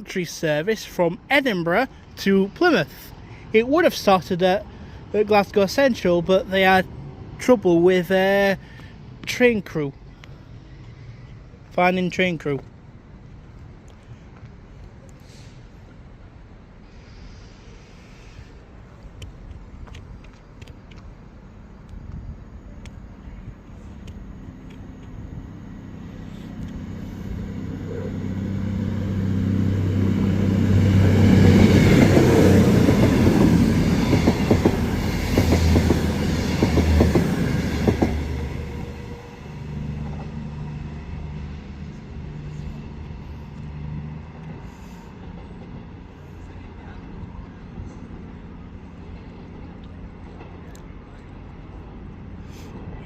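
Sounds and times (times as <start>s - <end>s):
train passing: 0.0s - 53.0s
low diesel hum: 19.7s - 53.0s.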